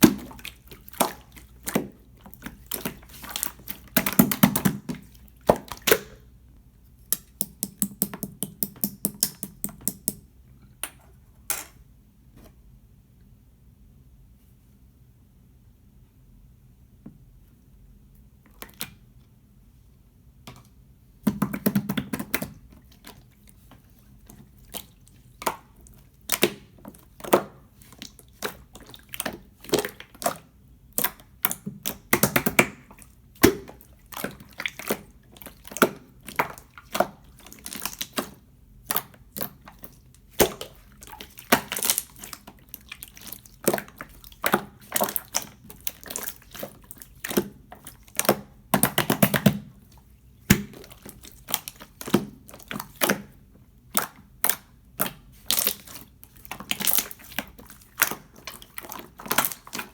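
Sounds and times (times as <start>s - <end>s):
slime squished by hand: 21.3s - 59.9s.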